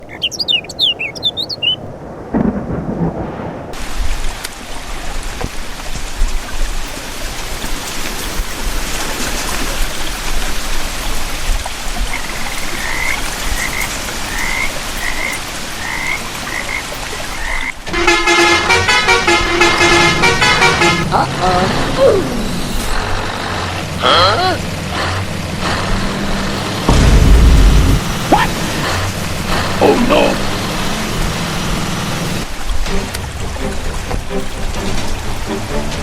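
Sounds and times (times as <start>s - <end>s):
high chirping: 0.0s - 1.9s
thunder rumbling: 1.8s - 4.4s, 26.9s - 28.4s
steady rain: 1.8s - 36.0s
frogs croaking: 11.9s - 17.9s
tooting horn-like sound: 17.9s - 21.1s.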